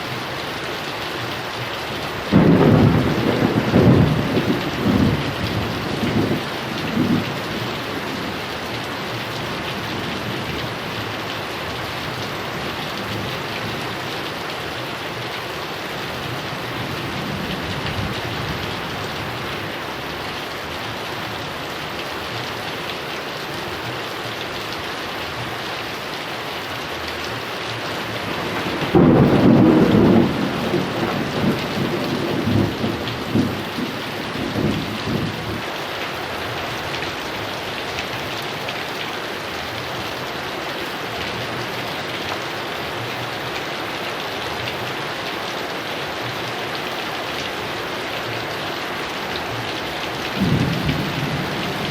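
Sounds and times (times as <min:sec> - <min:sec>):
heavy rain: 0:00.0 - 0:51.9
rolling thunder: 0:02.3 - 0:07.6, 0:28.2 - 0:35.6, 0:50.3 - 0:51.9.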